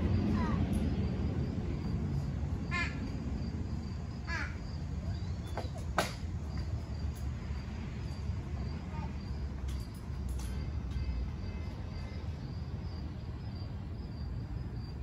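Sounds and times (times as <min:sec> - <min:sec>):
low background rumble: 0:00.0 - 0:05.6.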